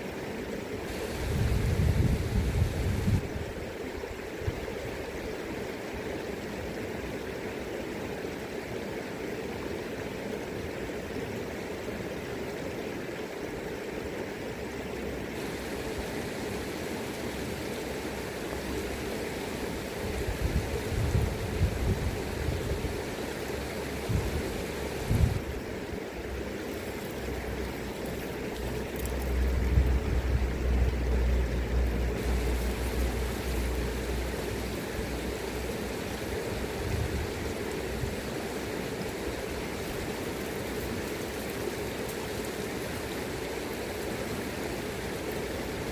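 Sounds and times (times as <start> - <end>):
river current rushing: 0.0 - 45.9
wind buffeting microphone: 0.9 - 3.6, 20.1 - 23.0, 24.0 - 25.6, 36.6 - 38.2.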